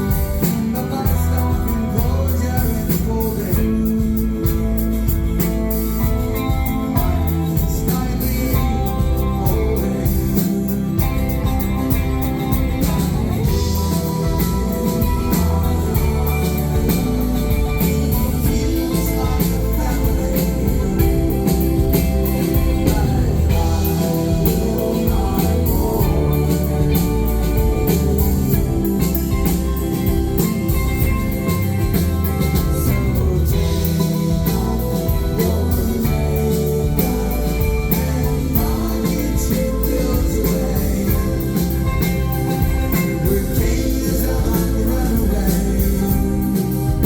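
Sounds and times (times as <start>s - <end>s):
drums and cymbals: 0.0s - 47.0s
live rock band playing: 0.0s - 47.0s.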